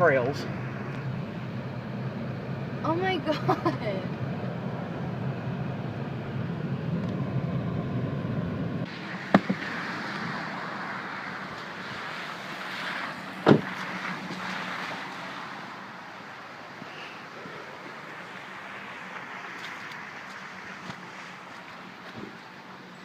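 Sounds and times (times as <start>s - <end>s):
car engine and road noise: 0.0s - 23.0s
sharp knocks: 9.3s - 9.6s, 13.4s - 13.8s.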